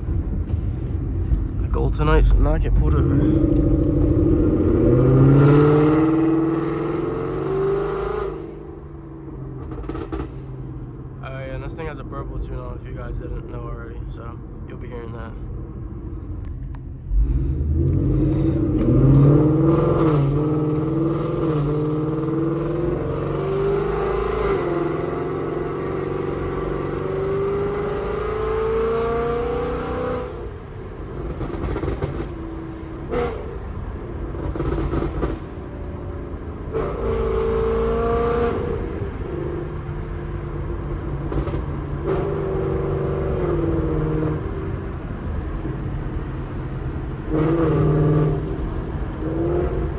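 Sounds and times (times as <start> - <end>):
exhaust pops and crackles: 0.0 - 4.7, 30.8 - 35.7, 39.1 - 42.8
car engine revving: 0.0 - 15.4, 16.9 - 49.9.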